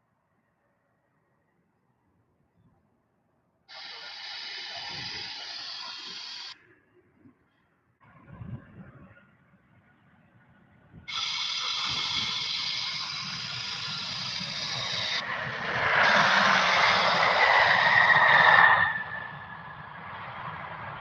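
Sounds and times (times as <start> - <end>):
jet engines roaring at takeoff: 3.7 - 6.6, 11.1 - 21.0.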